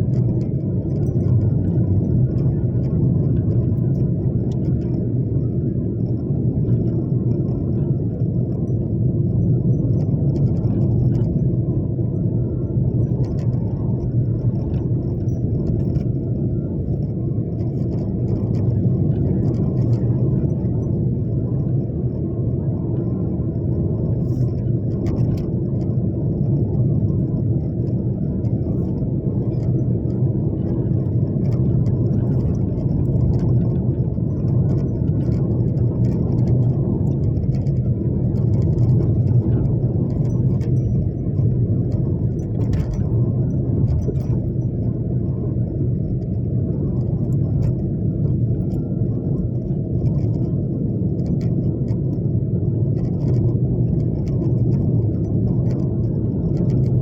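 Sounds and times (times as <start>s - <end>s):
vehicle road and engine rumble: 0.0s - 57.0s.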